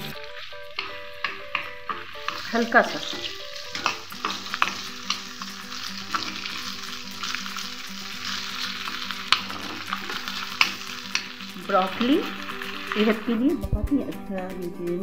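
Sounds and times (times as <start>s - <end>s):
potato strips sizzling in a pan: 0.0s - 13.7s
steel spatula scraping a pan: 0.8s - 11.5s.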